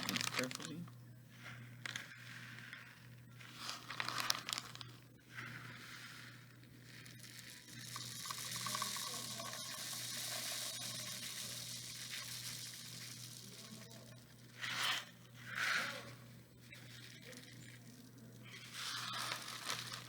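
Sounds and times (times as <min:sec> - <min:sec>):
paper rustling: 0:00.0 - 0:00.8, 0:01.8 - 0:05.0, 0:16.8 - 0:20.0
beads pouring into a tube: 0:00.0 - 0:00.9, 0:01.9 - 0:04.9, 0:05.6 - 0:15.1, 0:16.7 - 0:20.0.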